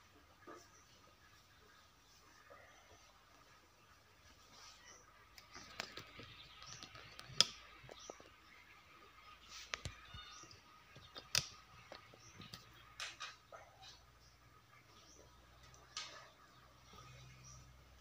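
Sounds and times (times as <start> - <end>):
clicks and knocks of handling: 5.3 - 8.4, 9.6 - 14.0.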